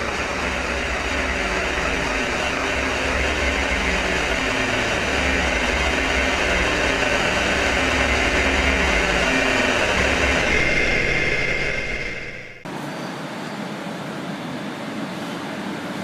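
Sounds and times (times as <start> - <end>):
thin high whine: 0.0 - 12.7
factory machine humming: 0.0 - 12.8.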